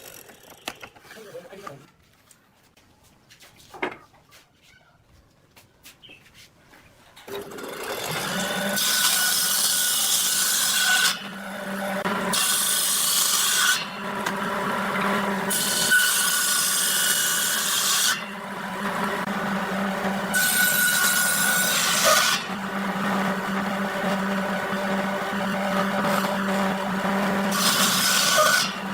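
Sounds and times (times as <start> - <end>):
tool grinding wood: 7.3 - 28.9.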